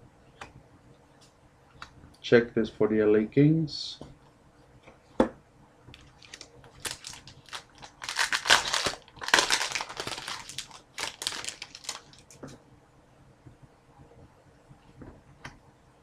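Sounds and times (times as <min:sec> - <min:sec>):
foil wrapper crinkling: 0:05.9 - 0:12.4.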